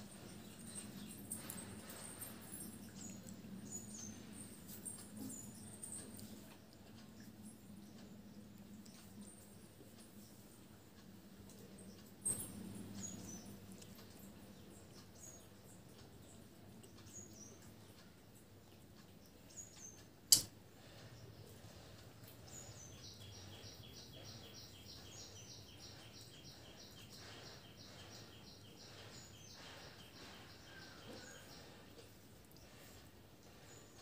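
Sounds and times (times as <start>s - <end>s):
birds chirping: 0.0s - 34.0s
sharp click: 20.3s - 20.5s.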